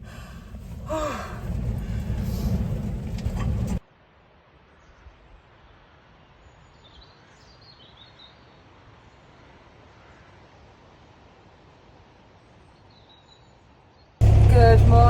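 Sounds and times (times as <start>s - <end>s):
wind buffeting microphone: 0.0s - 3.8s.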